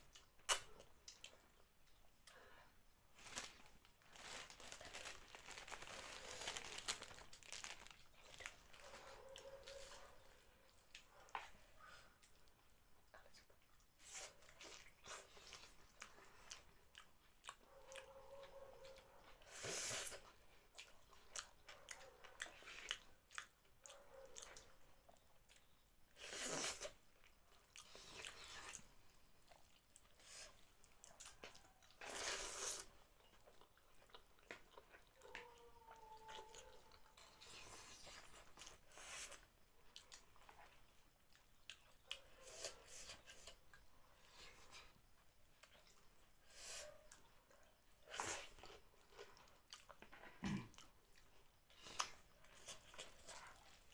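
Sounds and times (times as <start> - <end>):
wet mouth clicks: 0.5 - 1.3
person chewing food: 3.2 - 53.9.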